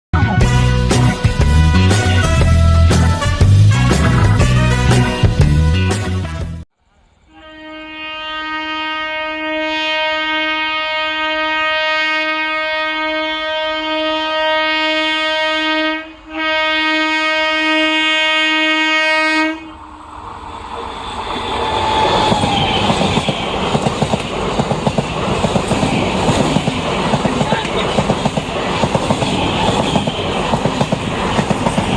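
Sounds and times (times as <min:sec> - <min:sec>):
train horn: 0:00.2 - 0:05.4, 0:07.2 - 0:20.0, 0:29.1 - 0:30.3
train rumble: 0:00.4 - 0:05.8, 0:19.4 - 0:31.9.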